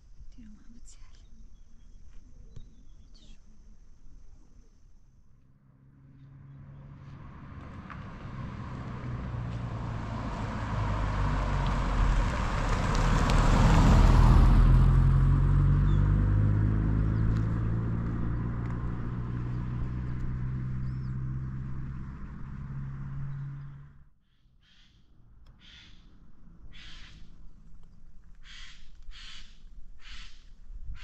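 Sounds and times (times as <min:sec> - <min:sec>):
vehicle engine passing by: 0:05.5 - 0:24.1.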